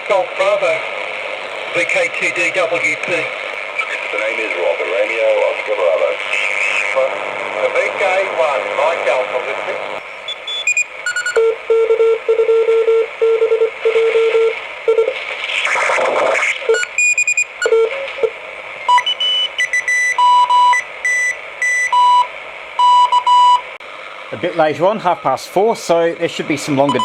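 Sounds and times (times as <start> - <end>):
radio band hiss: 0.0 - 12.3, 13.0 - 22.8, 23.7 - 27.0
radio tuning swish: 0.1 - 10.0, 13.9 - 17.0
morse code beeps: 10.3 - 15.2, 16.6 - 18.3, 18.9 - 23.6.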